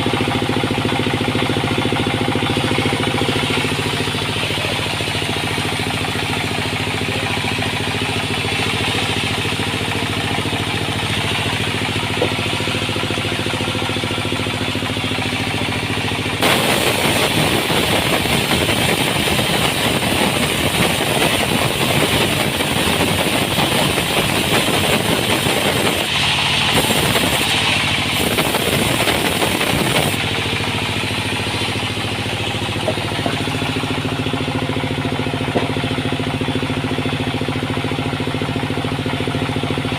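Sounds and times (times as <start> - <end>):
machinery engine hum: 0.0 - 39.9
saw cutting through wood: 16.4 - 34.0.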